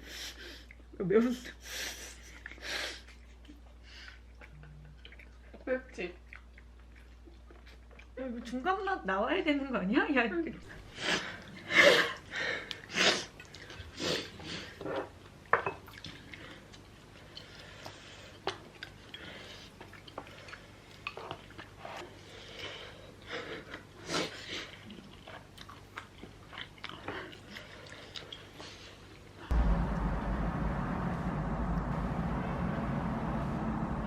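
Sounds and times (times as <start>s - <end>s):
people chewing and biting food: 1.6s - 8.6s, 10.7s - 29.5s.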